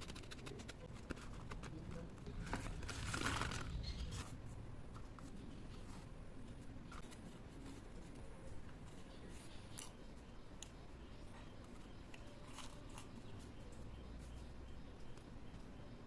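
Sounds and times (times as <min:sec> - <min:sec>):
scissors snipping paper: 0:00.0 - 0:01.8
paper crinkling: 0:00.0 - 0:09.9.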